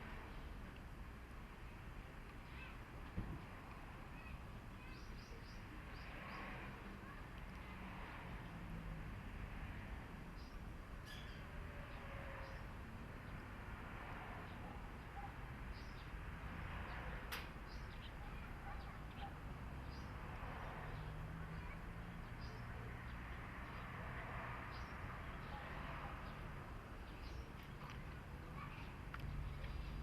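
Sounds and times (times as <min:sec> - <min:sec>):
small birds chirping: 0:04.1 - 0:08.7, 0:10.3 - 0:13.5, 0:14.4 - 0:16.2, 0:16.8 - 0:24.0, 0:24.6 - 0:30.0.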